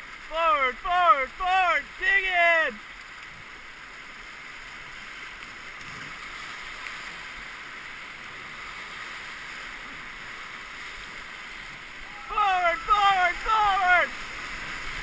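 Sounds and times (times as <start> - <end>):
whitewater rapids rushing: 0.0 - 2.8, 6.1 - 15.0.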